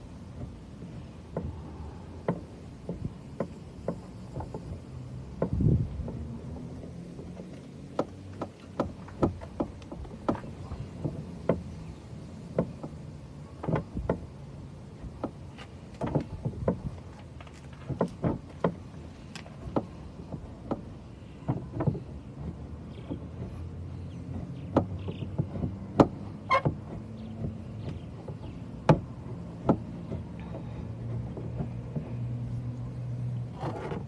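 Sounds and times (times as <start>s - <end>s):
sharp taps and knocks: 2.2s - 11.8s, 15.2s - 23.6s, 24.2s - 32.3s.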